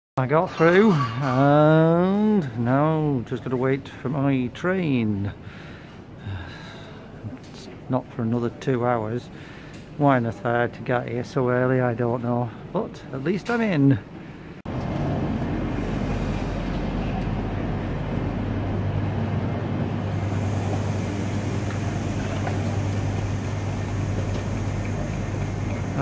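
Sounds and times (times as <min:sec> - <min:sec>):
train hum and rumble: 0:14.7 - 0:26.0.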